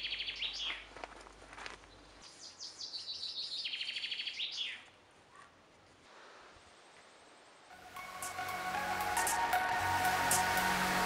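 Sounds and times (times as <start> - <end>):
songbird singing trill: 0.0 - 0.9, 1.9 - 4.9.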